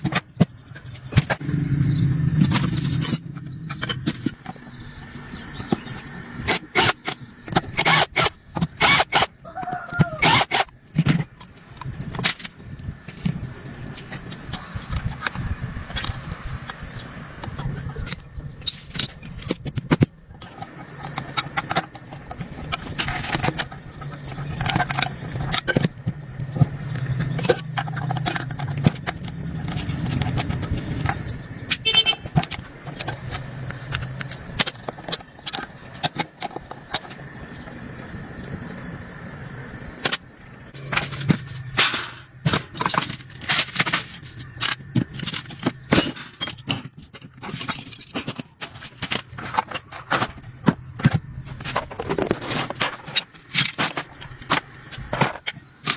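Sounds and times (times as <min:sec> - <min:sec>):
low hum: 0:00.1 - 0:06.5
metal parts clicking and clinking: 0:02.4 - 0:04.6, 0:40.9 - 0:50.4.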